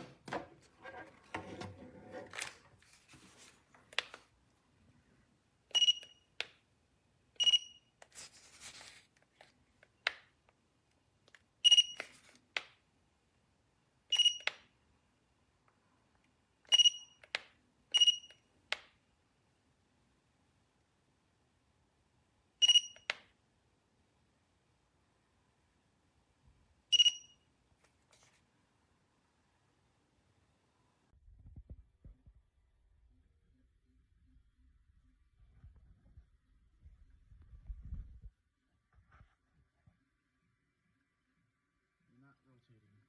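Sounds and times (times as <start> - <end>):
appliance button beeps: 5.7 - 6.3, 14.1 - 14.6, 22.6 - 23.2, 26.9 - 27.4.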